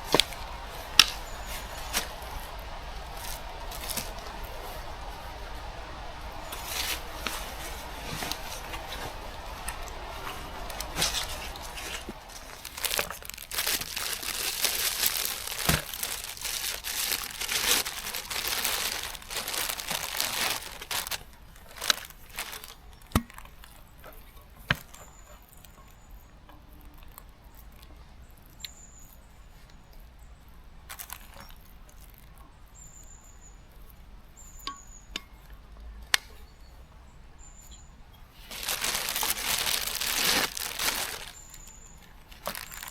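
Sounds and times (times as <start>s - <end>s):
material crinkling and rustling: 0.0s - 25.8s, 30.9s - 32.4s, 38.4s - 42.9s.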